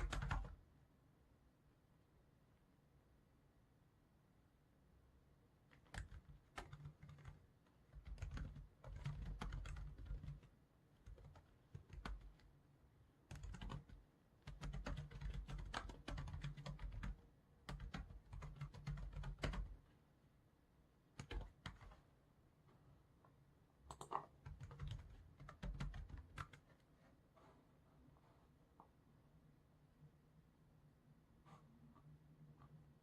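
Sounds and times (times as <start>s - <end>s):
computer keyboard typing: 0.0s - 0.6s, 5.7s - 12.5s, 13.3s - 19.8s, 21.2s - 22.0s, 23.9s - 26.8s.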